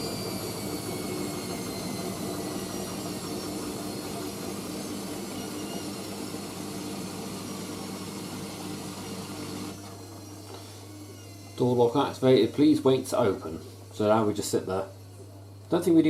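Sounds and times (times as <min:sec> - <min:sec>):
washing machine spinning: 0:00.0 - 0:14.9.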